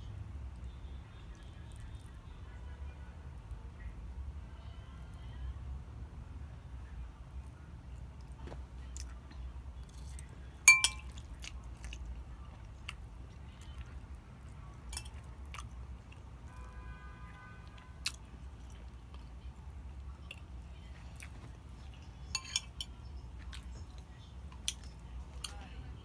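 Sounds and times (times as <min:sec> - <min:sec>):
sharp ringing clink: 0:10.7 - 0:11.1
person chewing: 0:10.9 - 0:14.1, 0:14.9 - 0:16.7, 0:17.7 - 0:19.3, 0:23.4 - 0:25.6.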